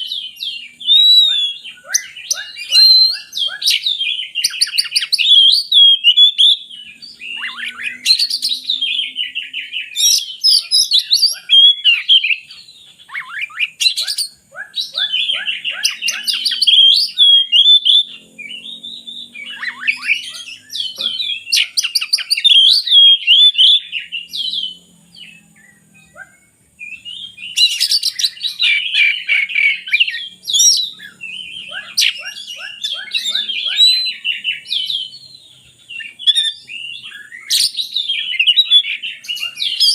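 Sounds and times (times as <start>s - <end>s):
bird singing whistled phrases: 0.0s - 39.9s.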